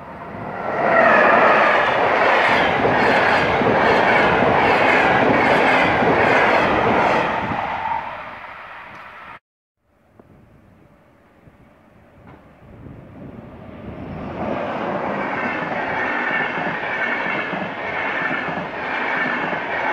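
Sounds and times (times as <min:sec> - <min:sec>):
train wheels rushing on rails: 0:00.0 - 0:09.4, 0:12.1 - 0:19.9
rail joint clacks: 0:14.8 - 0:19.9.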